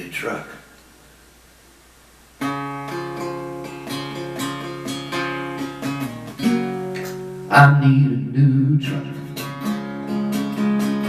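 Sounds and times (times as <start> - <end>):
acoustic guitar strumming chords: 2.4 - 11.0.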